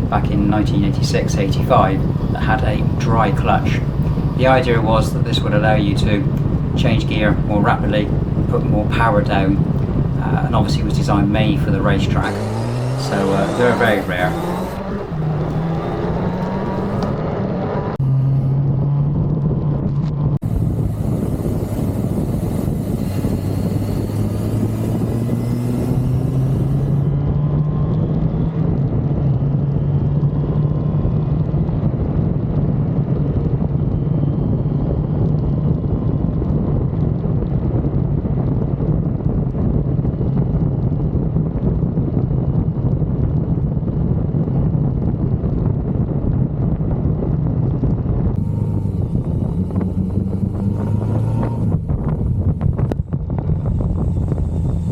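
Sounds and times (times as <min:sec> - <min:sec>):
motorcycle engine running: 0:00.0 - 0:17.2, 0:20.4 - 0:27.2, 0:48.3 - 0:54.9.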